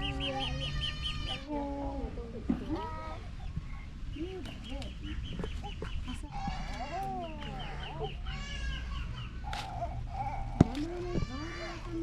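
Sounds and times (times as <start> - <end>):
bird chirping: 0.0 - 1.4
farm animal bleating: 0.0 - 1.8, 6.2 - 9.0.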